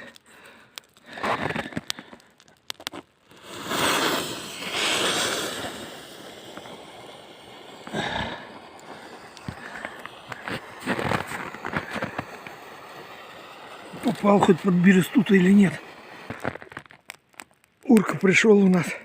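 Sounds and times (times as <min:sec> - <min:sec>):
hissing scrape: 0:02.8 - 0:17.0.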